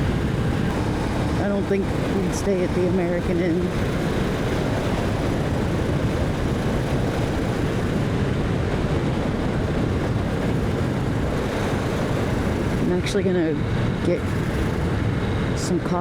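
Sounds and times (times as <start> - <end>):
motorcycle engine running: 0.0 - 15.3
wind noise rushing: 0.0 - 16.0.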